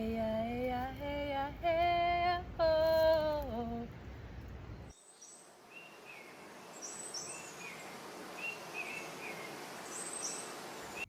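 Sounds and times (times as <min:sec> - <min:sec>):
background hiss: 0:00.0 - 0:11.0
birds chirping: 0:04.6 - 0:11.0.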